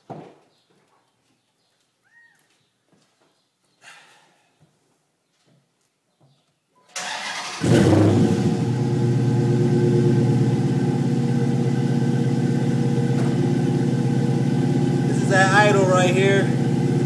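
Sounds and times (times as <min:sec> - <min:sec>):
car engine starting and idling: 0:07.0 - 0:17.0.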